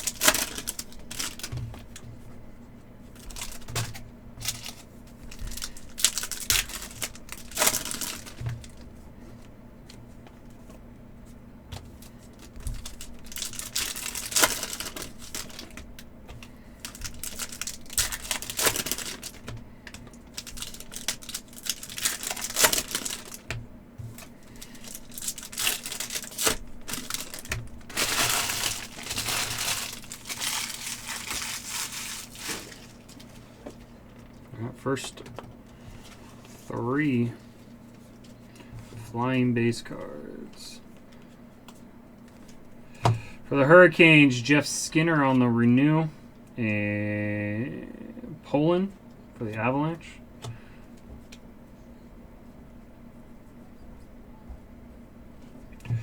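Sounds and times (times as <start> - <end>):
card wrappers tearing and crinkling: 0.0 - 2.0, 3.2 - 8.8, 12.0 - 23.6, 24.2 - 34.4
faint low hum: 0.0 - 56.0.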